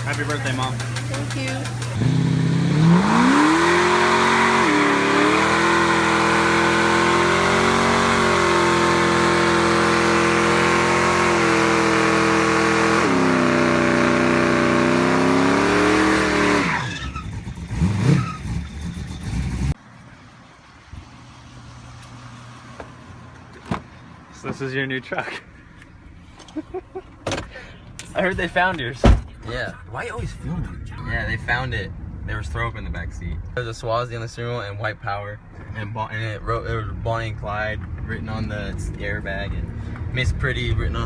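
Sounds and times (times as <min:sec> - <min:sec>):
vehicle engine revving: 0:00.0 - 0:19.8.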